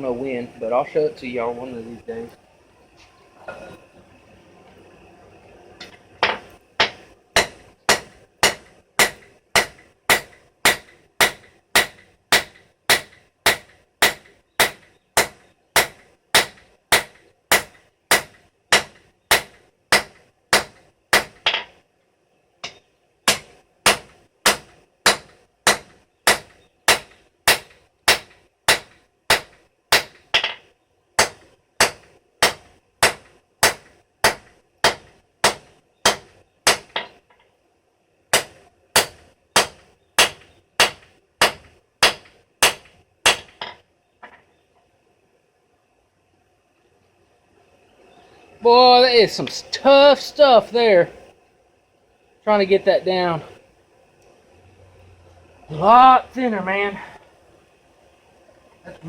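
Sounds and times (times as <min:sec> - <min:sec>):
hammer striking steel on anvil: 0:05.8 - 0:21.7, 0:22.6 - 0:30.6, 0:38.3 - 0:43.8.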